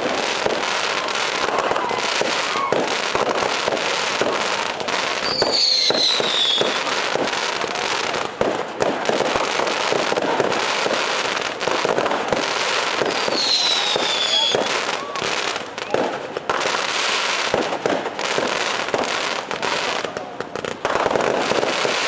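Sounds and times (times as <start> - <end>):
fireworks crackling and banging: 0.0 - 22.0
firework whistle falling in pitch: 5.2 - 6.9, 13.3 - 14.7.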